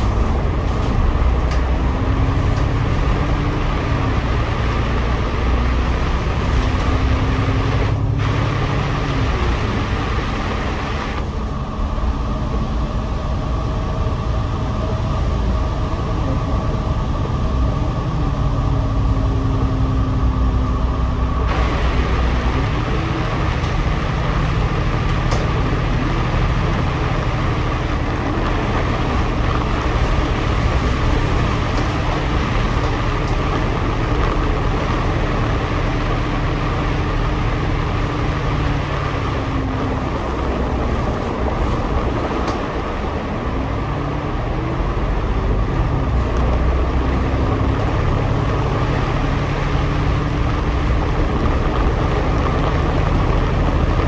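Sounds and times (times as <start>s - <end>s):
bus engine drone: 0.0s - 54.0s
road hiss: 2.8s - 11.4s, 21.4s - 45.2s.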